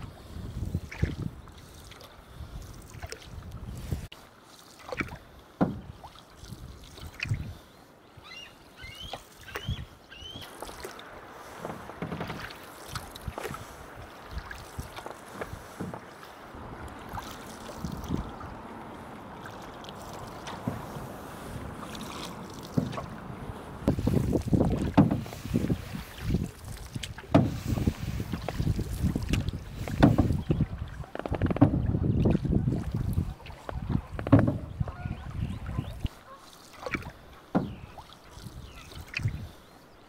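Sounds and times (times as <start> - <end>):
canoe paddles pulling through water: 0.0 - 40.0
rippling water: 0.0 - 40.0
wind: 0.0 - 40.0
knocks against canoe: 5.6 - 6.0, 11.6 - 12.6, 15.4 - 16.2, 20.1 - 25.7, 27.0 - 28.6, 29.3 - 32.4, 33.8 - 34.8, 36.9 - 38.0.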